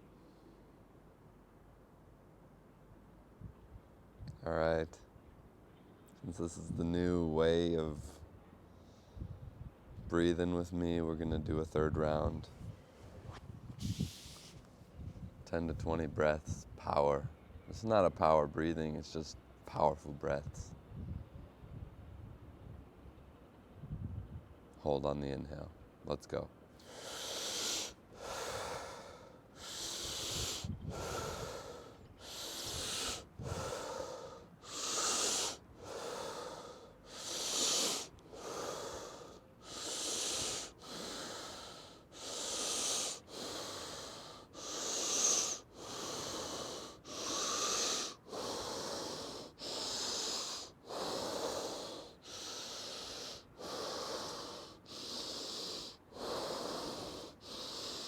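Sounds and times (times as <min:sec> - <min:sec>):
man breathing deeply: 0:26.8 - 0:58.0.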